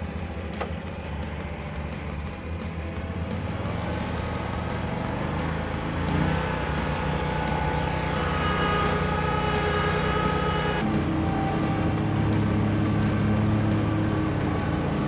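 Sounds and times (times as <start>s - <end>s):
riding mower engine running: 0.0s - 15.0s.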